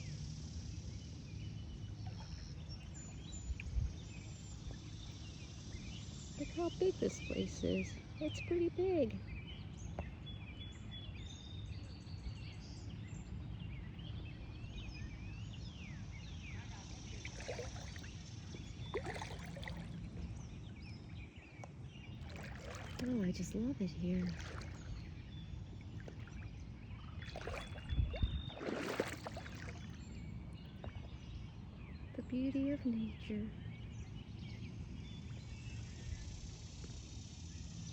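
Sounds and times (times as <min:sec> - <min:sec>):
small birds chirping: 0:00.0 - 0:37.9
water sloshing and splashing: 0:17.0 - 0:20.4, 0:22.2 - 0:31.2.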